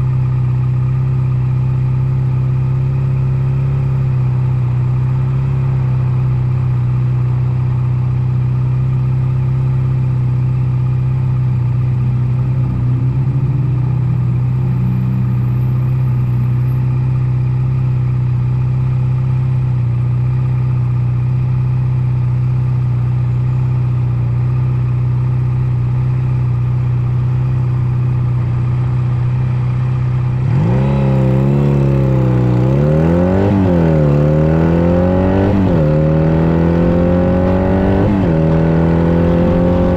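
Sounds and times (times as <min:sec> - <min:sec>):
motorcycle engine revving: 0:09.5 - 0:22.8, 0:24.4 - 0:39.9.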